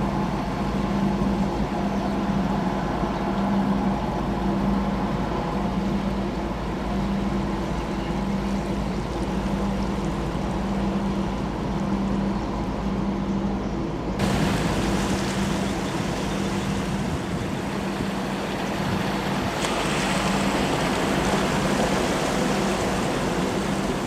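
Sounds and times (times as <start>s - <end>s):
boat engine droning: 0.0s - 24.0s
water wash: 14.2s - 24.0s
wind noise: 14.2s - 24.0s.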